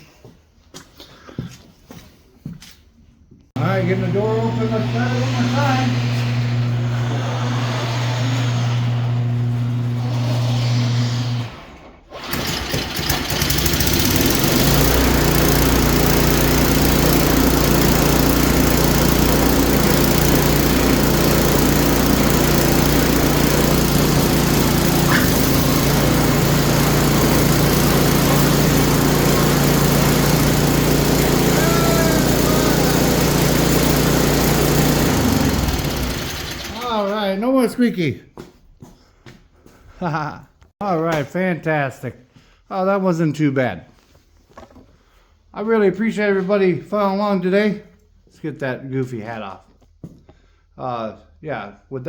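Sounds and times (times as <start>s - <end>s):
garage door motor humming: 3.6s - 37.2s
small engine starting and running: 3.6s - 37.2s.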